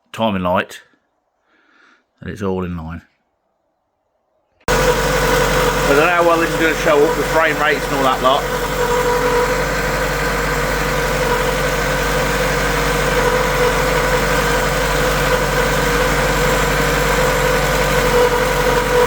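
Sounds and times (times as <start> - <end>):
car engine idling: 4.7 - 19.0.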